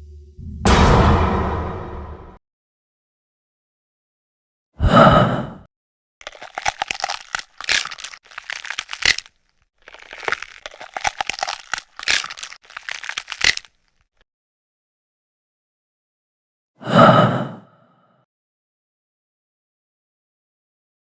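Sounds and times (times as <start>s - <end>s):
crackling crunching bursts: 6.2s - 14.2s.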